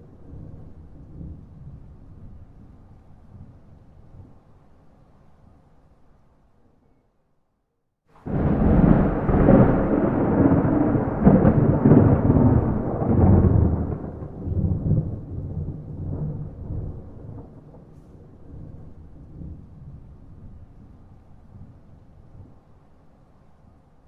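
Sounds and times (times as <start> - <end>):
thunder rumbling: 8.2 - 22.6.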